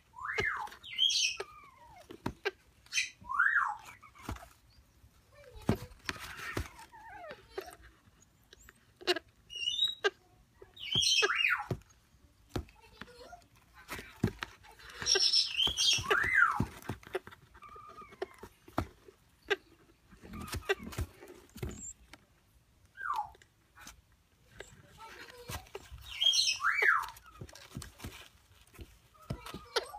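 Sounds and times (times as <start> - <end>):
baby parrots squeaky whistled cries: 0.1 - 2.1, 2.8 - 4.8, 8.5 - 11.8, 14.8 - 18.5, 20.3 - 22.0, 23.0 - 23.4, 25.3 - 27.9, 29.3 - 29.9.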